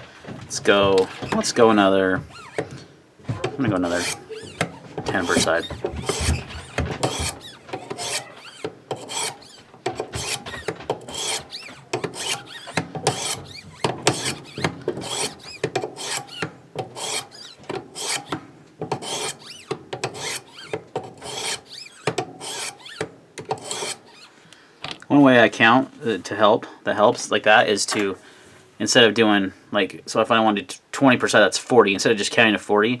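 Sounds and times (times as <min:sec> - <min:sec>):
sharpening stone rasping on knife blade: 0:03.9 - 0:18.3, 0:19.0 - 0:23.0, 0:23.6 - 0:24.0.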